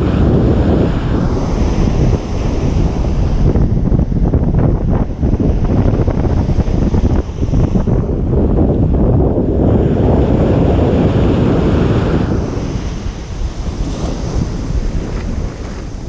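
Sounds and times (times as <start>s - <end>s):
wave breaking on beach: 0.0s - 3.8s, 9.6s - 16.0s
wind buffeting microphone: 0.0s - 16.0s.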